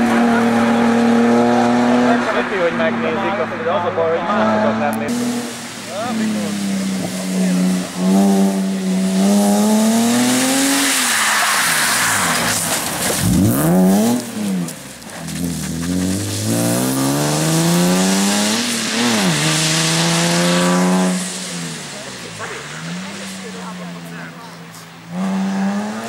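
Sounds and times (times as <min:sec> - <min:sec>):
rally car engine revving: 0:00.0 - 0:26.0
tyre and road noise: 0:00.0 - 0:26.0.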